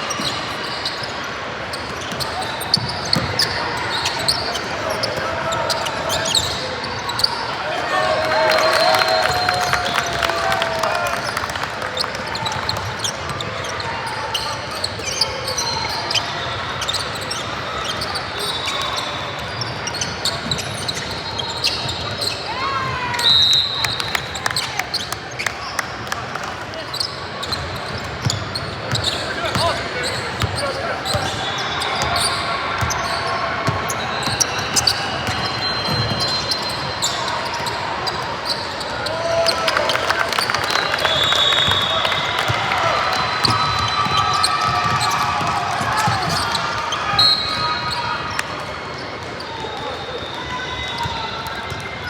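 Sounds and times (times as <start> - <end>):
shoe squeaks: 0.0 - 7.6, 12.0 - 22.6, 26.9 - 39.2, 46.0 - 49.9
gym hall noise: 0.0 - 52.0
basketball bouncing on court: 1.8 - 3.6, 43.4 - 46.6.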